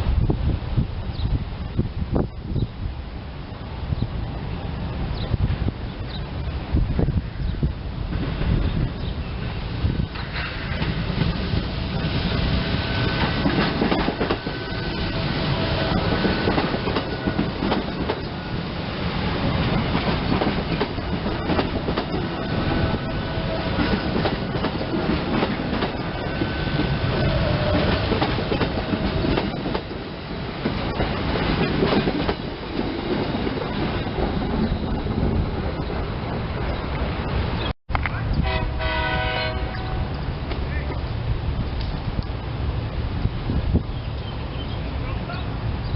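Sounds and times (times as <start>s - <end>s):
electric train rolling by: 0.0s - 45.9s
wheels clacking over rail joints: 8.0s - 38.2s.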